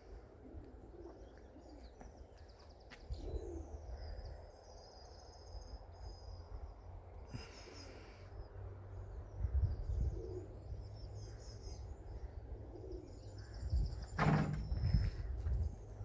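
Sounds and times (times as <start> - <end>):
small birds chirping: 0.1 - 16.0
wind rumble on microphone: 9.0 - 16.0.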